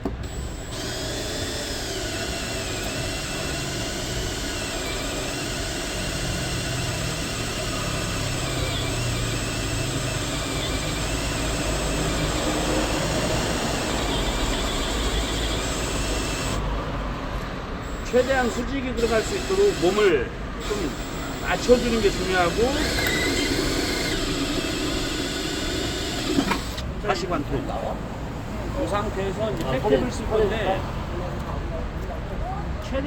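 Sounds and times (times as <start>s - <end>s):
electric drill boring into metal: 0.0s - 16.6s, 17.8s - 27.0s.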